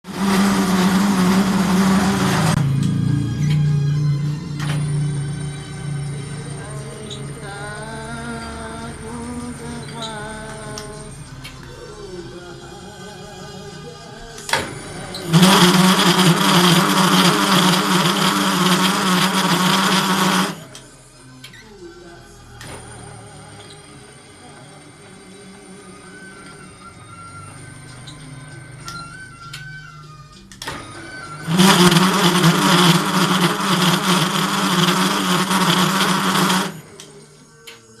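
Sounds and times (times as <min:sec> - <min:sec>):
metal lathe cutting: 0:00.0 - 0:02.9, 0:14.6 - 0:20.8, 0:30.7 - 0:37.1.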